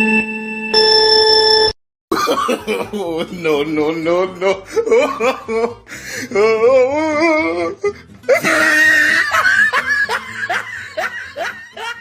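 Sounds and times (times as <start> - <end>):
rapid rhythmic laughter: 2.2 - 3.5, 4.1 - 6.3, 7.8 - 12.0.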